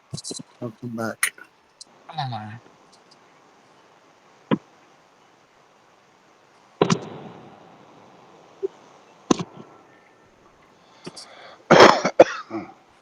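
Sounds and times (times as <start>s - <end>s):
fireworks bangs echoing: 6.8s - 8.4s.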